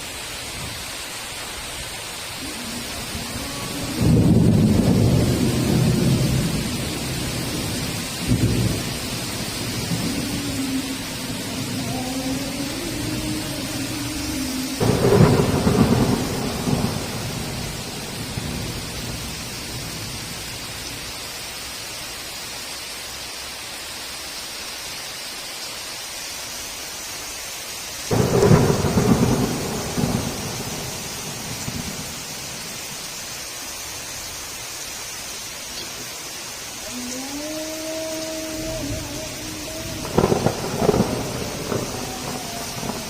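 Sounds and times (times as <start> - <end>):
steady heavy rain: 0.0 - 43.0
thunderclaps: 2.8 - 12.0, 14.8 - 20.0, 28.1 - 32.8, 38.9 - 43.0.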